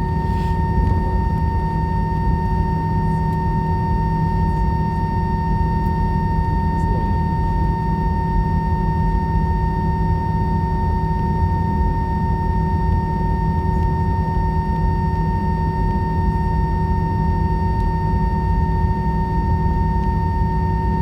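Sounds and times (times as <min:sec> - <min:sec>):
high-pitched engine screeching whine: 0:00.0 - 0:04.1
dense low rumble: 0:00.0 - 0:04.7.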